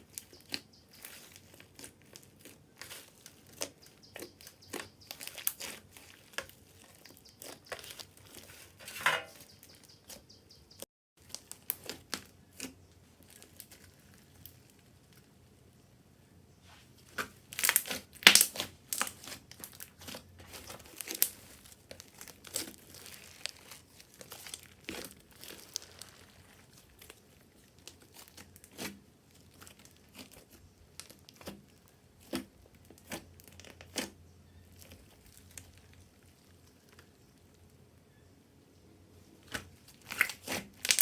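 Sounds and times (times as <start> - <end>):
sticky slime pops and crackles: 17.2 - 19.9, 39.5 - 41.0.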